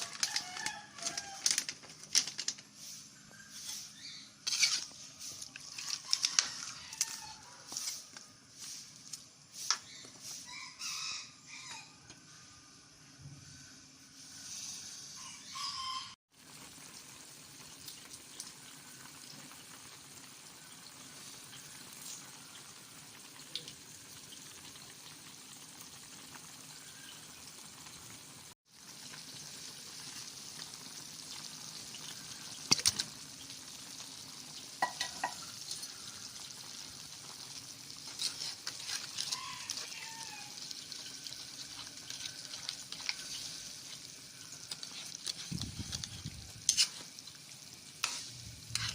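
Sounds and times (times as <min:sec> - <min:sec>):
food sizzling in a pan: 0:02.7 - 0:11.7, 0:12.3 - 0:48.9
utensil scraping a pan: 0:02.8 - 0:08.9, 0:38.0 - 0:40.1, 0:44.7 - 0:47.2, 0:48.0 - 0:48.9.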